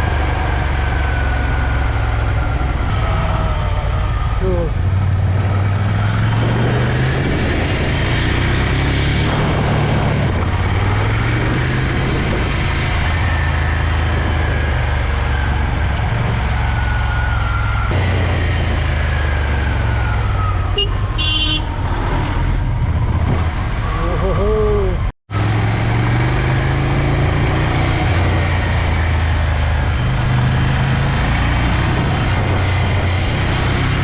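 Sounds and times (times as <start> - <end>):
horn honking: 20.7 - 22.6.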